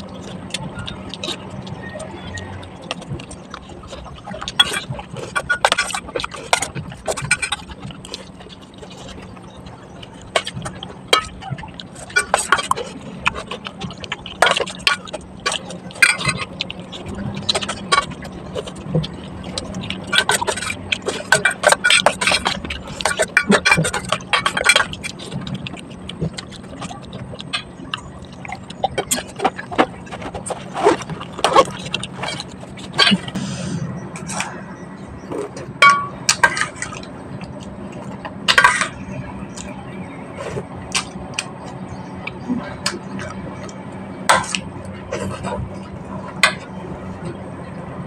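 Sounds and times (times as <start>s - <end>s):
steady low hum: 0.0s - 48.0s
small hard objects clinking: 34.1s - 48.0s.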